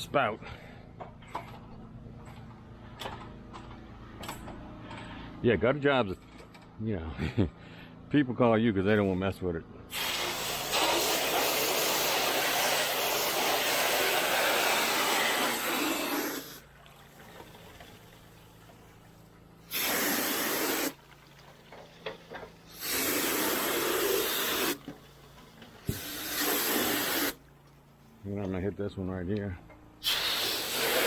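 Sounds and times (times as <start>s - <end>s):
pressure washer water spray: 9.9s - 16.7s, 19.6s - 21.2s, 22.0s - 27.4s, 30.0s - 31.0s.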